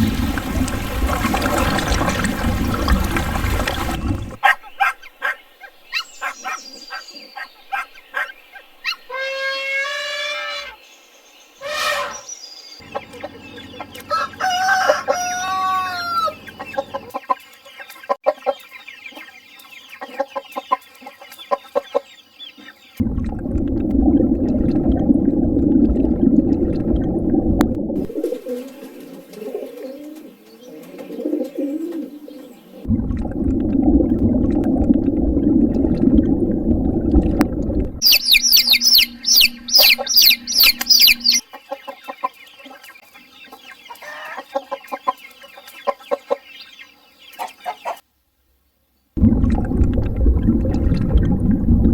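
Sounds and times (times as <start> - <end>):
hens clucking: 12.8 - 19.3, 38.0 - 42.9, 43.5 - 46.5
rooster crowing: 13.9 - 16.5
high rapid peeping: 38.0 - 41.4.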